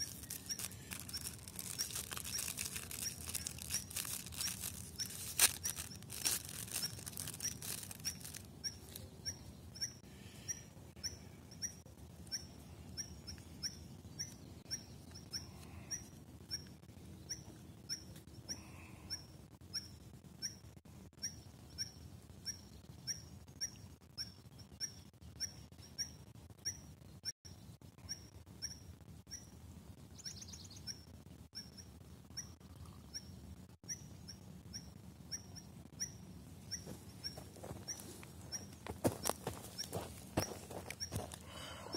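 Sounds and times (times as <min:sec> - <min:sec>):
food wrapper crinkling: 0:00.0 - 0:09.0
bird chirping: 0:00.0 - 0:41.9.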